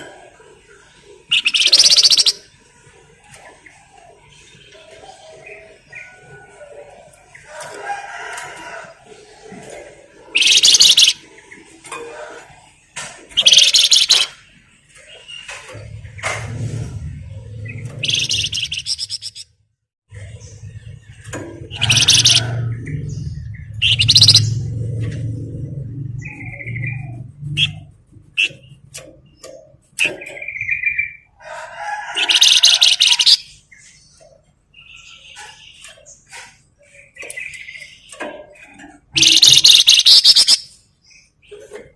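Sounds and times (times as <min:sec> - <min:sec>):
songbird chirping and trilling: 0:00.0 - 0:19.5, 0:20.1 - 0:41.9
rapid high-pitched bird trills: 0:01.2 - 0:02.5, 0:10.3 - 0:11.2, 0:13.4 - 0:14.4, 0:17.7 - 0:19.5, 0:21.6 - 0:24.7, 0:32.1 - 0:33.6, 0:34.8 - 0:41.3
songbird chattering: 0:01.2 - 0:02.5, 0:10.3 - 0:11.5, 0:13.4 - 0:14.4, 0:17.7 - 0:19.4, 0:21.6 - 0:24.7, 0:32.2 - 0:38.2, 0:39.0 - 0:41.4.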